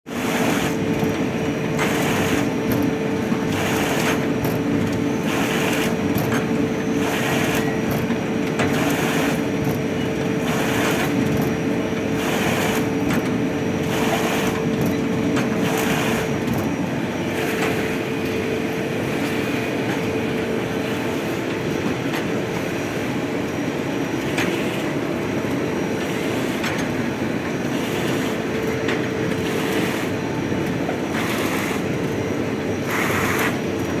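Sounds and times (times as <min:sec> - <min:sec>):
sewing machine running: 0:00.1 - 0:06.2, 0:06.9 - 0:18.0, 0:26.0 - 0:28.6, 0:29.2 - 0:34.0.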